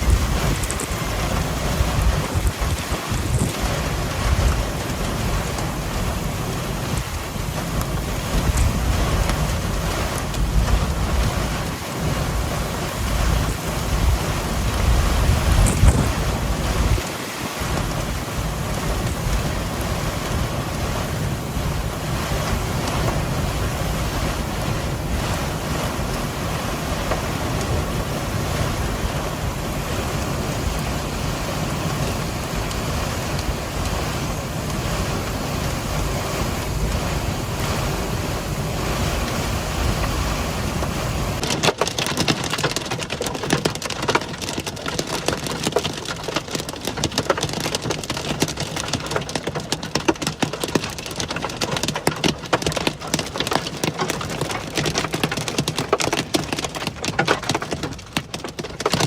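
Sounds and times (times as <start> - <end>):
strong wind buffeting microphone: 0.0 - 41.5
heavy rain on hard surface: 0.0 - 59.0.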